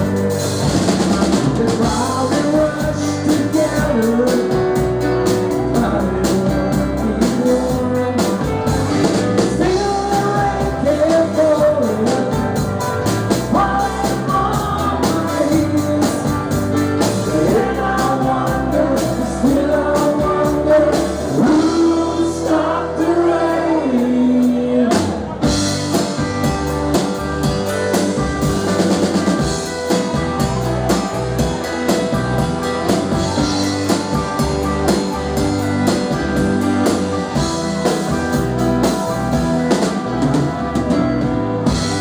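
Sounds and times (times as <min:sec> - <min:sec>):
live rock band playing: 0:00.0 - 0:42.0
person singing: 0:01.3 - 0:08.8, 0:09.4 - 0:25.7.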